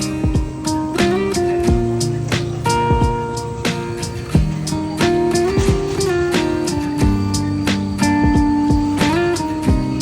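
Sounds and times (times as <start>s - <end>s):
low kick-drum thumps: 0.0s - 2.1s, 2.8s - 6.1s, 6.9s - 10.0s
background music with held notes: 0.0s - 10.0s.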